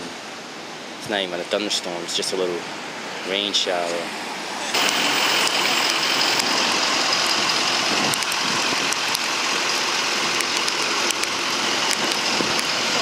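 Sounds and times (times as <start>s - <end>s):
steady rain hiss: 0.0s - 13.0s
raindrops ticking close by: 4.8s - 13.0s.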